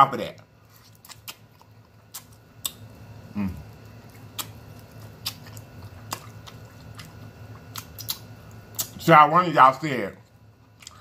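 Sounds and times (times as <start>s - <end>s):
chewing with wet mouth smacks: 0.7s - 2.9s, 3.6s - 9.0s
short low mouth sound: 3.4s - 3.6s.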